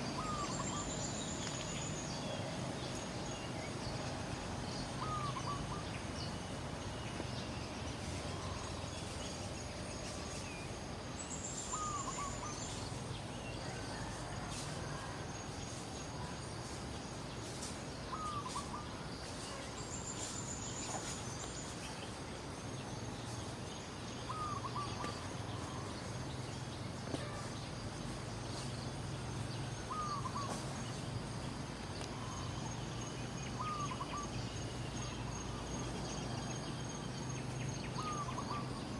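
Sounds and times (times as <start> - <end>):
bird call: 0.0 - 1.9, 24.3 - 25.9, 33.5 - 34.4, 37.8 - 38.9
steady hiss: 0.0 - 38.9.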